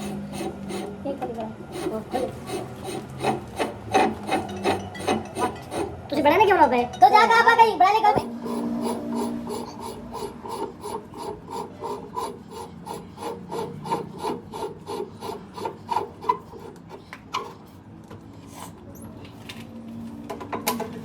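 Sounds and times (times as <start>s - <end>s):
hand tool stroking metal: 0.0s - 7.2s, 8.3s - 17.6s.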